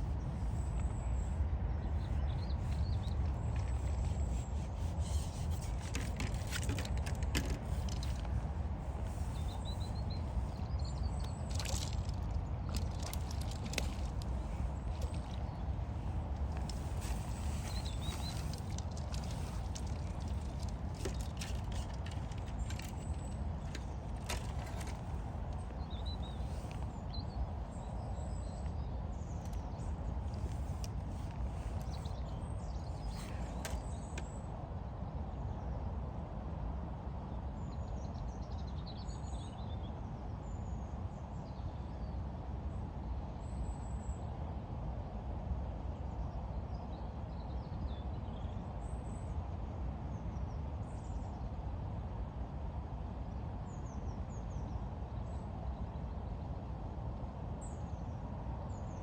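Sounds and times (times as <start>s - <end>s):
small birds chirping: 0.0s - 34.4s.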